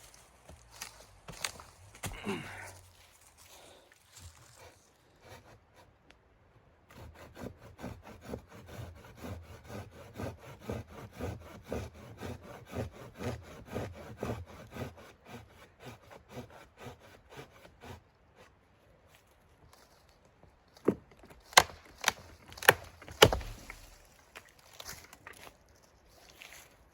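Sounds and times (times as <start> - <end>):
hand saw cutting wood: 4.4 - 6.0, 6.9 - 18.6, 21.4 - 24.1.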